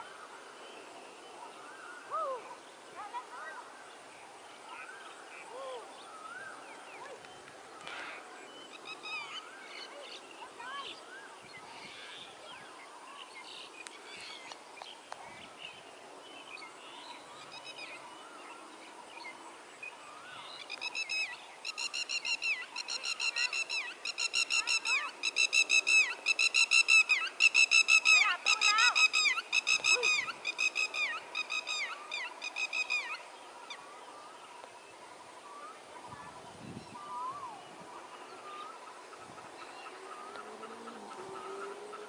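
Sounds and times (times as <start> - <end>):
faint bird chirps: 0.0 - 42.0
bird calling rapid repeated notes: 20.8 - 33.2.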